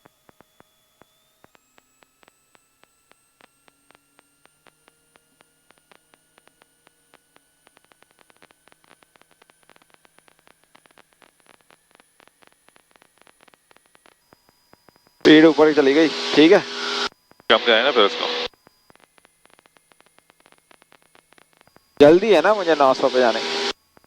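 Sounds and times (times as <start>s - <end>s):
faint electrical hiss: 15.3s - 18.5s, 22.0s - 23.7s
thin whine tones: 15.3s - 18.5s, 22.0s - 23.7s.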